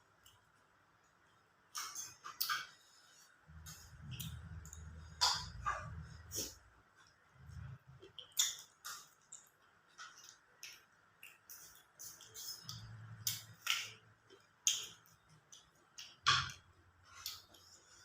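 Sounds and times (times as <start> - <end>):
wet chewing and lip smacks: 7.9 - 16.2.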